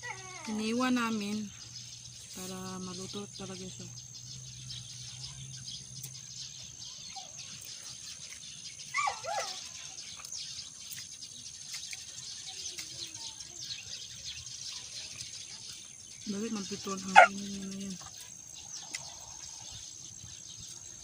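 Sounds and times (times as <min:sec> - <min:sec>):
dog barking: 0:17.1 - 0:17.4.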